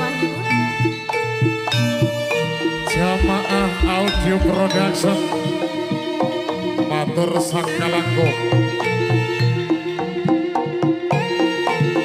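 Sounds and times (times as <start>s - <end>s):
held melodic tones: 0.0s - 5.9s
struck percussion beat: 0.6s - 6.4s.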